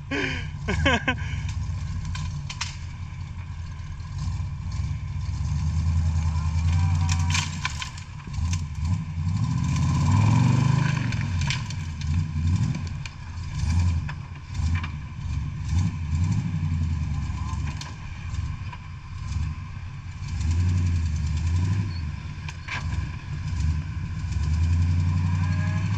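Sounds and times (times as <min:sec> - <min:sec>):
car engine revving: 0:00.0 - 0:25.9
knocks and clatter: 0:01.5 - 0:05.4, 0:06.5 - 0:09.0.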